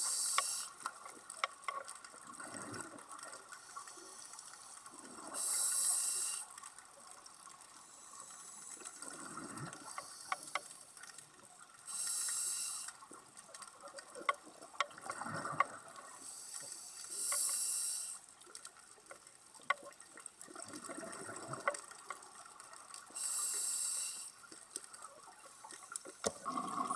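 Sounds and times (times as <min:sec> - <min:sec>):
regulator breath hiss: 0:00.0 - 0:00.8, 0:03.6 - 0:06.5, 0:07.8 - 0:09.1, 0:09.8 - 0:10.7, 0:11.9 - 0:13.0, 0:16.2 - 0:18.2, 0:23.1 - 0:24.4
bubbles gurgling: 0:20.5 - 0:21.7, 0:26.4 - 0:26.9.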